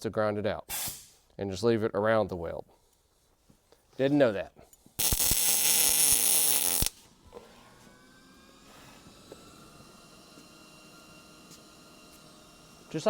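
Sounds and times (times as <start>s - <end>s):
welder arc crackling hiss: 0.7s - 1.3s, 5.0s - 7.0s.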